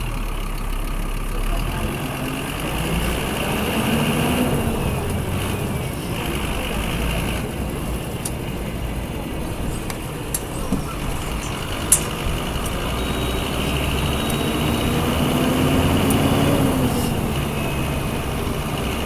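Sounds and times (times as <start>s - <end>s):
bus diesel engine running: 0.0s - 19.0s
sharp clicks: 9.6s - 19.0s.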